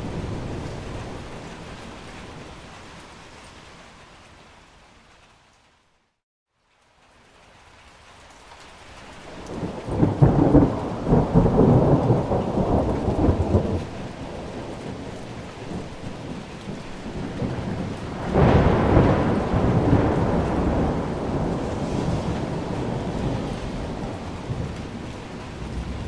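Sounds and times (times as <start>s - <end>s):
steady rain: 0.0s - 26.0s
rolling thunder: 9.4s - 26.0s.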